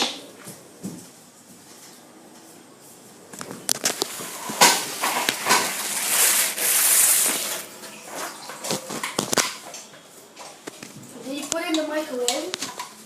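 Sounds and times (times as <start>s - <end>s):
tap water running: 4.3s - 9.5s
hands washing under water: 4.6s - 9.6s.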